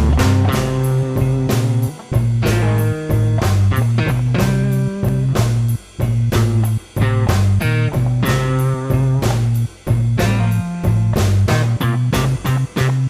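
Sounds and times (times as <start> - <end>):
blues-rock band playing: 0.0 - 13.0.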